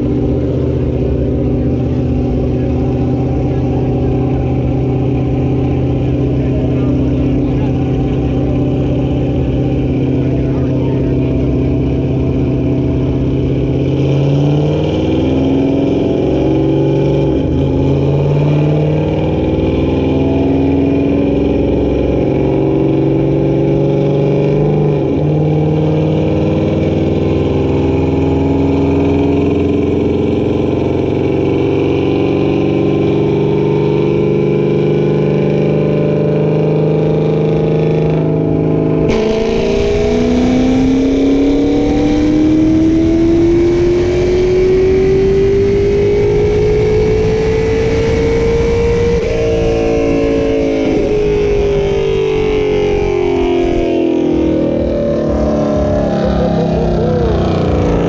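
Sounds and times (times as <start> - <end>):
engine revving on a dyno: 0.0 - 58.0.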